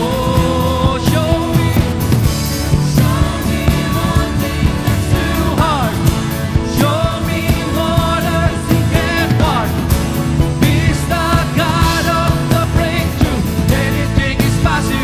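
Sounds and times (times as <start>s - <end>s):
drums keeping steady beat: 0.0s - 15.0s
person singing: 0.0s - 15.0s
worship band playing: 0.0s - 15.0s.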